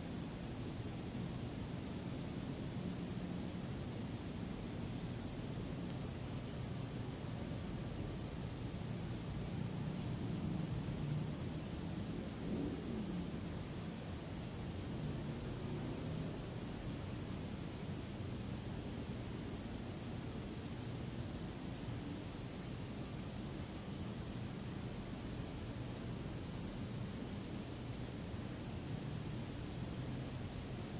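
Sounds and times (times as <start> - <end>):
crickets trilling: 0.0 - 30.9.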